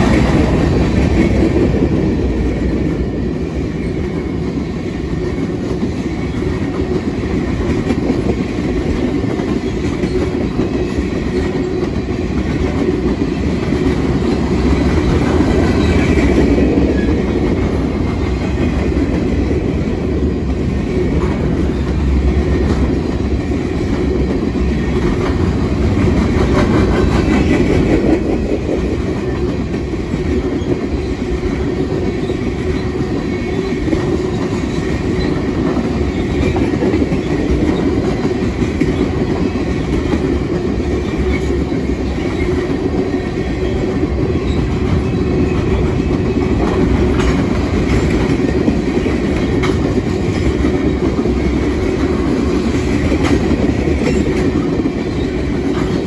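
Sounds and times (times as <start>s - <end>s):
steel wheels rumbling on rail: 0.0s - 56.0s.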